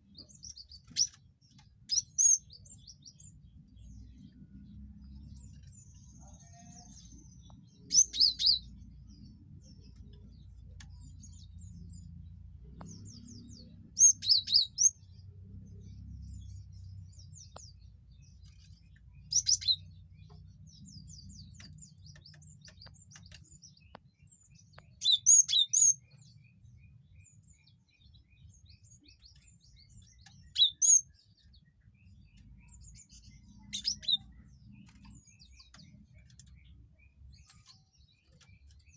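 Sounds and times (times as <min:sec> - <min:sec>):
bird whistling song: 0:24.8 - 0:26.2, 0:32.6 - 0:35.1.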